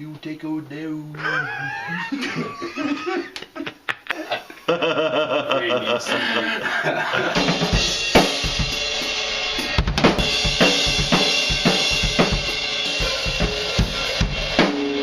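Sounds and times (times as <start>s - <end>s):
bass drum: 7.3s - 15.0s
cymbals: 7.4s - 15.0s.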